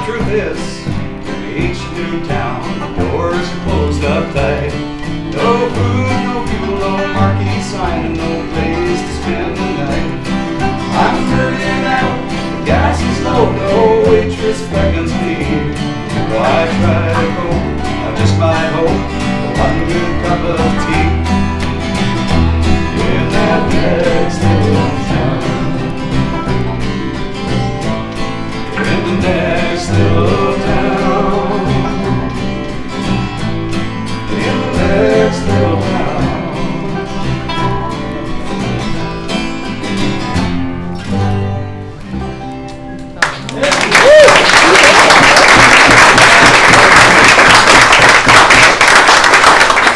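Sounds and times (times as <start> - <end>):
steady bass line: 0.0 - 42.9
acoustic folk band playing: 0.0 - 49.9
guitar: 0.0 - 49.9
sliding lead notes: 3.0 - 42.9.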